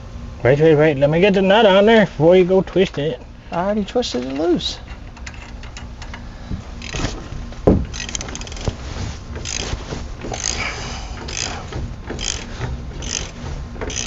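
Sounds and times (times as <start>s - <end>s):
wrench scraping and clicking on nut: 4.2s - 6.2s, 6.8s - 7.3s, 7.9s - 14.0s.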